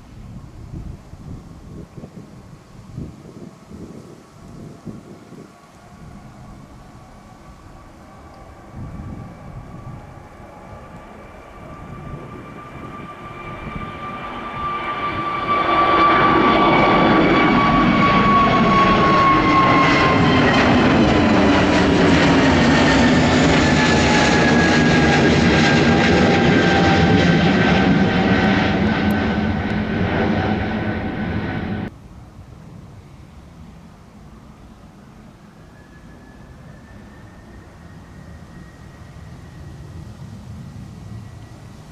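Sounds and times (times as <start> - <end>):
jet fan whine: 0.0 - 32.0
jet engines at takeoff: 0.0 - 41.9.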